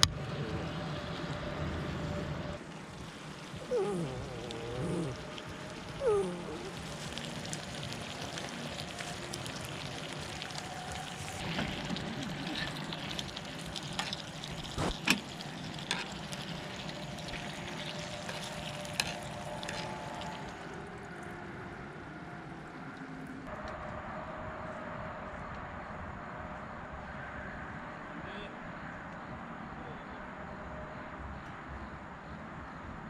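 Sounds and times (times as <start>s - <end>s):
food sizzling on a griddle: 4.5s - 20.8s.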